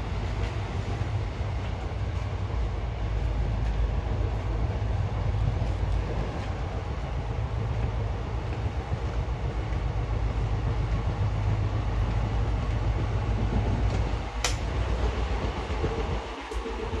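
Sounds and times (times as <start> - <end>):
train carriage rumbling and rattling: 0.0 - 17.0
sharp click: 14.4 - 14.6.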